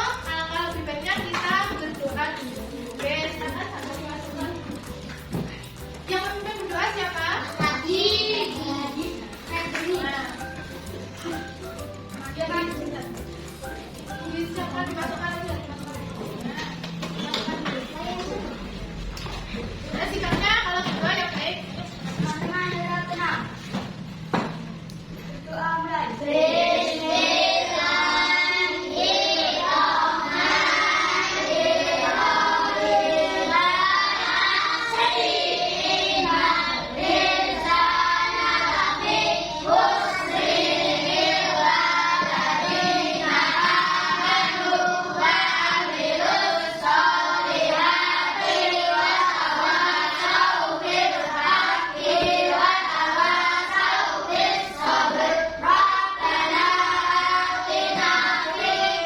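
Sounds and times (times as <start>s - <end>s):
children singing together: 7.5s - 11.5s, 26.1s - 59.0s.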